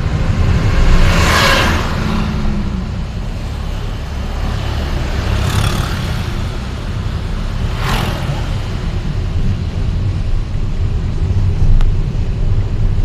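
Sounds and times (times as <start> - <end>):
vehicle passing: 0.0 - 9.9
traffic rumble: 0.0 - 13.0.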